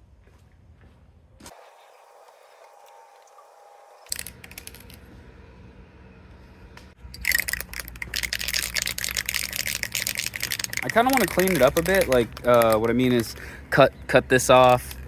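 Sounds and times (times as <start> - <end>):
metallic clattering and rattling: 7.1 - 13.4
sharp clicks: 7.2 - 13.6, 14.4 - 15.0.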